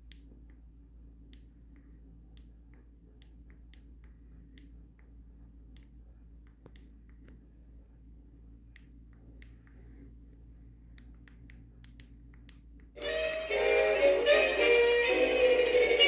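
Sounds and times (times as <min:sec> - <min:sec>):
faint sharp clicks: 0:00.0 - 0:07.4, 0:08.6 - 0:13.4
steady low hum: 0:00.0 - 0:16.0.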